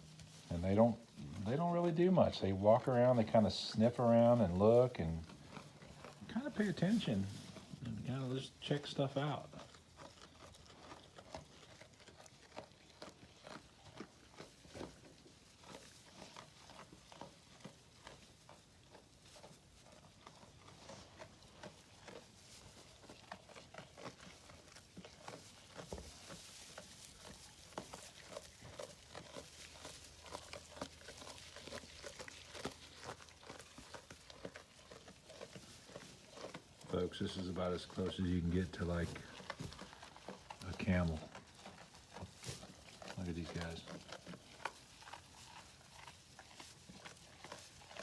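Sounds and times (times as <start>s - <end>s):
llamas munching hay: 0.0s - 48.0s.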